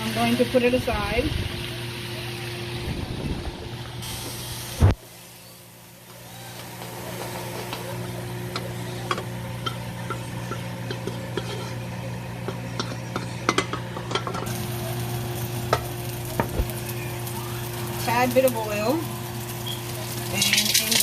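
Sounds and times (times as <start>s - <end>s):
meat sizzling in hot oil: 0.0s - 3.3s, 14.5s - 21.0s
steady low hum: 0.0s - 6.1s
utensil scraping a pan: 10.5s - 11.9s.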